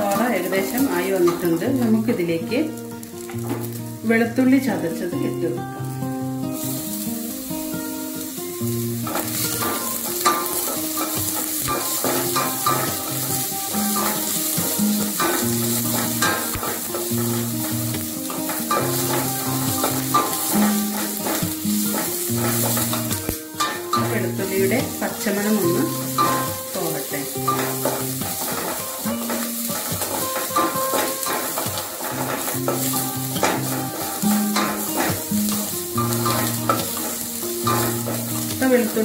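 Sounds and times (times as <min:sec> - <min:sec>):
held low music notes: 0:00.0 - 0:39.0
onions and garlic sizzling: 0:00.0 - 0:39.0
wooden spatula scraping metal pot: 0:27.4 - 0:38.6.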